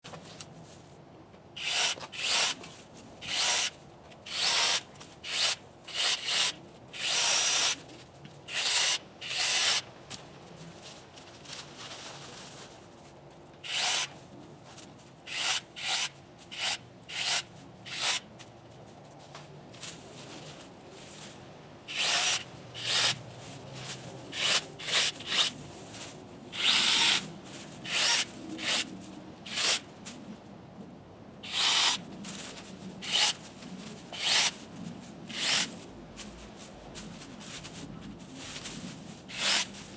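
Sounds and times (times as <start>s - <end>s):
electric chainsaw cutting branches: 1.6s - 2.6s, 3.2s - 7.8s, 8.5s - 9.8s, 13.6s - 14.1s, 15.3s - 18.2s, 21.9s - 23.2s, 24.3s - 25.5s, 26.6s - 27.3s, 27.9s - 28.9s, 29.5s - 29.8s, 31.4s - 32.0s, 33.0s - 33.4s, 34.2s - 34.6s, 35.3s - 35.7s, 39.3s - 39.7s.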